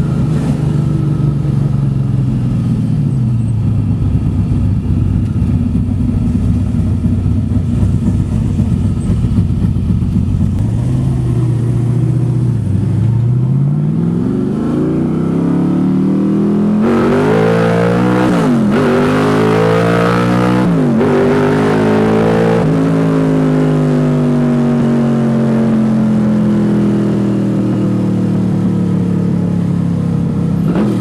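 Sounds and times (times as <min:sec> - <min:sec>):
car engine rumbling and revving: 0:00.0 - 0:31.0.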